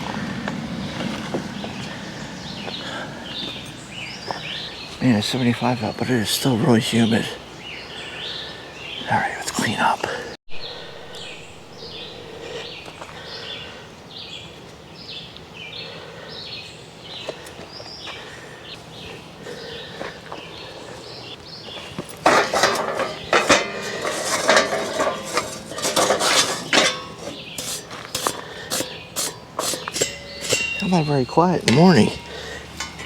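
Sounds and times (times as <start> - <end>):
dishes and pots clattering: 22.2 - 33.0.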